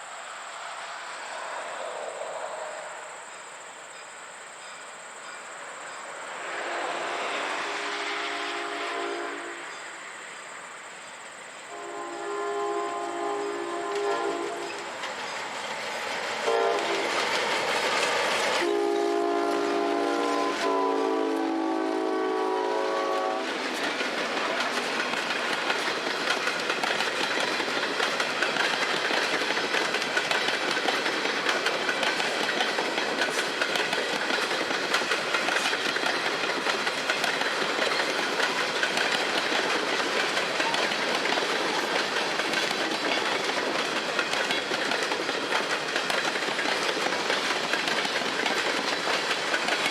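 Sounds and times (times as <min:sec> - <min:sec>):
locomotive air horn blasts: 0:06.6 - 0:09.7, 0:11.7 - 0:14.8, 0:16.4 - 0:17.0, 0:18.6 - 0:23.5
train wheels clattering on rails: 0:12.8 - 0:20.9, 0:23.0 - 0:49.9.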